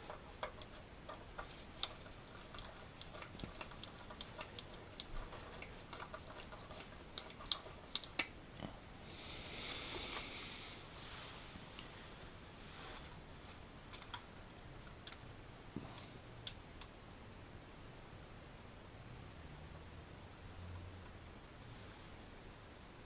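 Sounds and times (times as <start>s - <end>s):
rustle: 9.6s - 13.7s.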